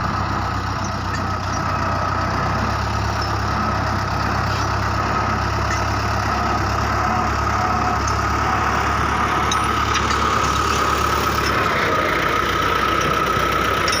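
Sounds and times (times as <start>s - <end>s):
tractor diesel engine rumbling: 0.0s - 14.0s.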